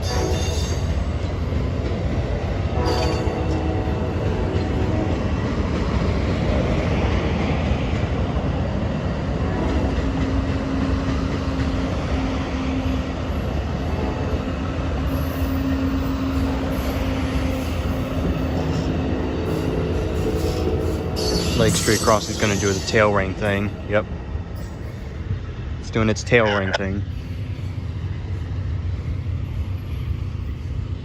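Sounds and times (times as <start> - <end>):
train wheels rumbling on rail: 0.0 - 31.0
wheel squeal tone: 20.2 - 23.2.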